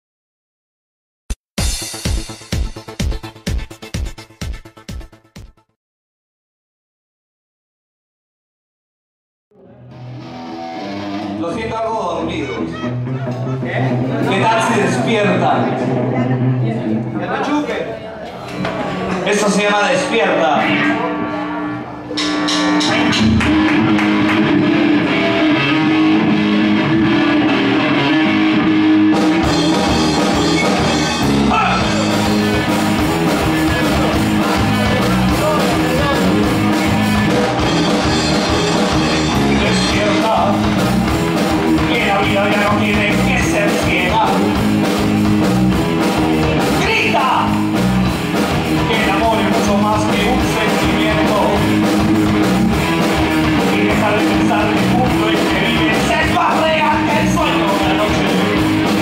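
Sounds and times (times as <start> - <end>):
guitars: 9.5 - 17.5, 18.3 - 59.0
person singing: 39.3 - 40.8, 48.8 - 51.8, 53.5 - 59.0.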